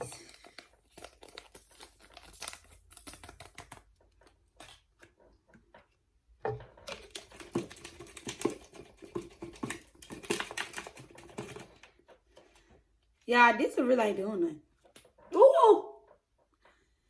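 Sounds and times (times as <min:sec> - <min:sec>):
powder packet crinkling: 0:00.0 - 0:04.8.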